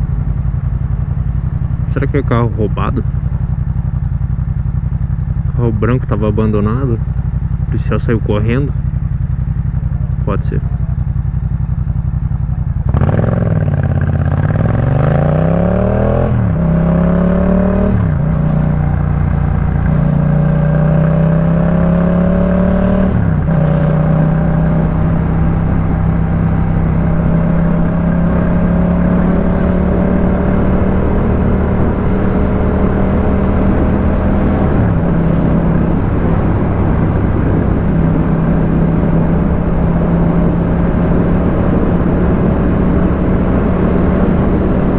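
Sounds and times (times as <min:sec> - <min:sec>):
motorcycle engine upshifting: 0:00.0 - 0:44.9.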